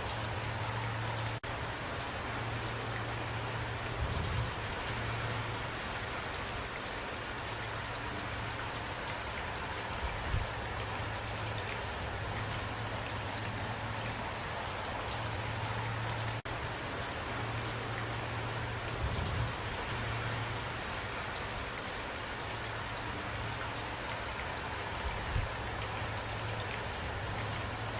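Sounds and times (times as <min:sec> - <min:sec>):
rain falling: 0:00.0 - 0:27.9.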